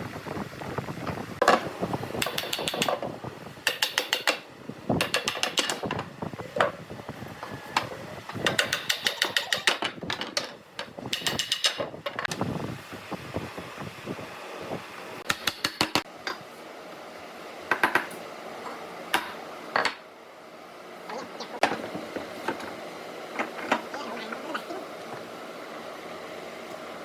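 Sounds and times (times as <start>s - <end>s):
ratchet clicking rapidly: 8.4s - 9.8s.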